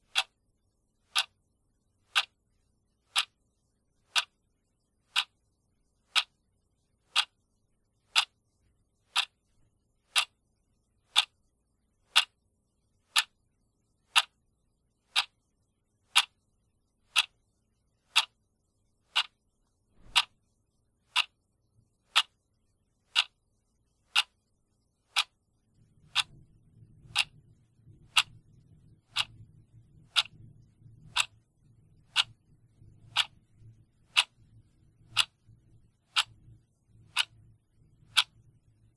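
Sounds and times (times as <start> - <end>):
clock ticking: 0.0 - 0.4, 1.0 - 4.4, 5.0 - 5.4, 6.0 - 6.4, 7.0 - 7.4, 8.0 - 10.4, 11.0 - 11.4, 12.1 - 12.4, 13.1 - 13.4, 14.0 - 14.4, 15.0 - 15.5, 16.1 - 18.4, 19.1 - 20.4, 21.1 - 21.4, 22.1 - 22.5, 23.1 - 23.4, 24.1 - 24.5, 25.1 - 38.9
faint low rumble: 19.7 - 38.9.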